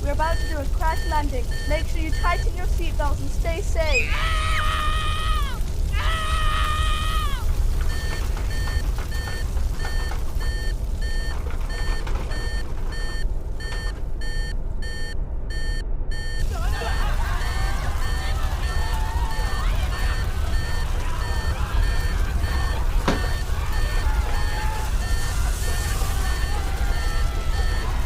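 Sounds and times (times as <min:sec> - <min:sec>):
electronic alarm beeping: 0:00.1 - 0:02.6, 0:07.8 - 0:16.4, 0:17.4 - 0:28.0.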